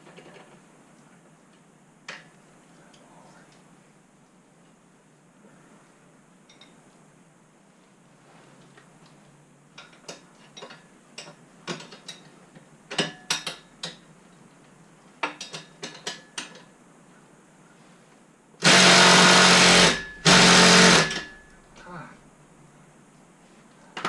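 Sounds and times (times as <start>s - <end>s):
power tool motor running: 18.6s - 21.4s.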